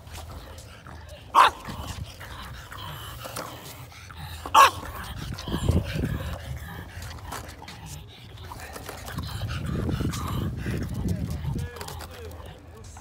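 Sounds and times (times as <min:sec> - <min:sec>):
skateboard wheels rolling on concrete: 0:00.0 - 0:13.0
dog barking: 0:01.3 - 0:01.8, 0:04.5 - 0:04.8.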